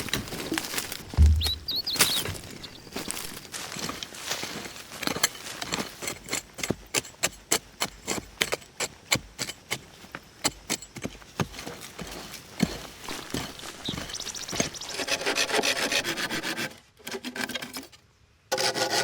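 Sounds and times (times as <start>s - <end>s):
sharp knocks or taps: 1.1s - 2.5s.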